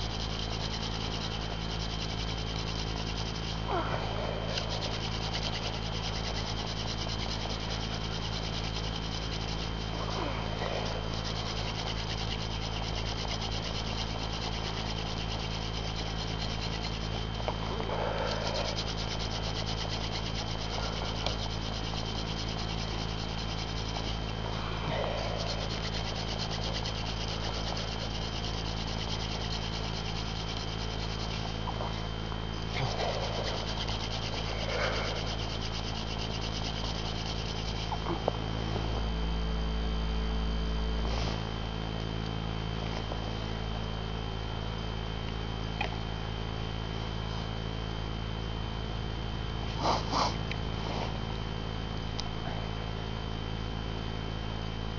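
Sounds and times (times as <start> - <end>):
wooden spindle friction rubbing: 0.0 - 39.4, 40.9 - 41.4.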